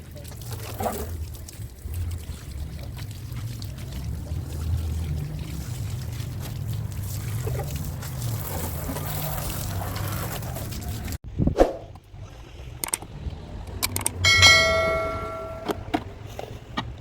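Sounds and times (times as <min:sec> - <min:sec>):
knocks and clicks: 0:13.7 - 0:16.1
ringing strike on metal: 0:14.3 - 0:15.9.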